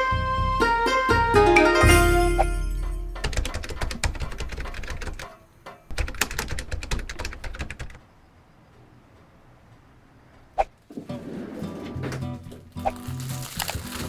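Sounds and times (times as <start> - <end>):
plucked string note ringing: 0.0 - 4.0
sharp clicking taps: 2.8 - 8.0.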